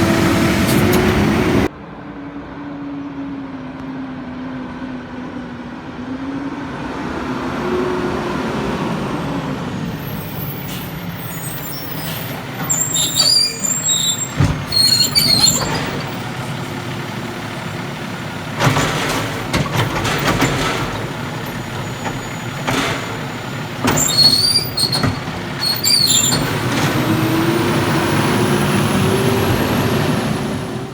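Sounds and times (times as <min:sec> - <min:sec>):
brakes squealing: 0:00.0 - 0:01.7, 0:08.6 - 0:30.9
diesel truck engine revving: 0:00.0 - 0:01.7, 0:07.2 - 0:30.9.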